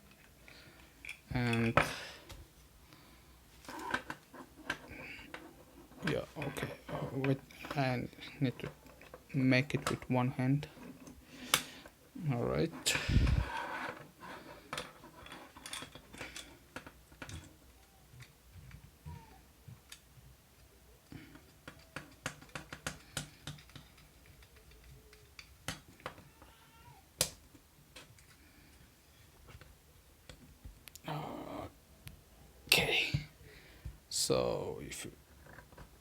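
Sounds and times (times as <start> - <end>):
plastic parts clicking: 19.7 - 26.6.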